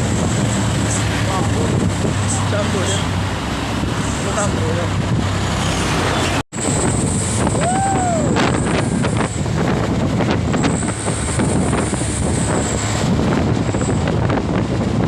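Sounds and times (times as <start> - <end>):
wind buffeting microphone: 0.0 - 15.0
truck engine running: 8.3 - 15.0.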